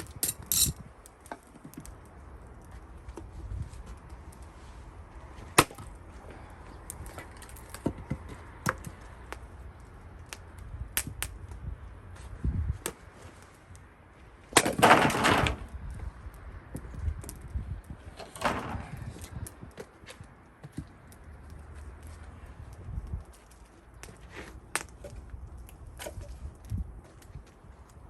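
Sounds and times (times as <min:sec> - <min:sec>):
axe splitting wood: 0:14.6 - 0:15.6
split wood pieces clattering: 0:14.6 - 0:15.7, 0:18.2 - 0:19.3.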